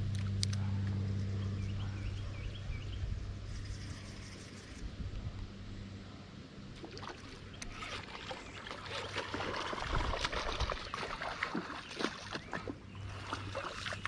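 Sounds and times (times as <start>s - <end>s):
water splashing and trickling: 6.8s - 14.0s.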